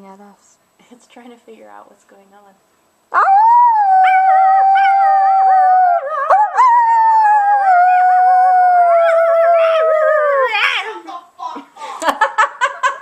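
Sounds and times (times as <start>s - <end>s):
person howling: 3.2s - 10.6s.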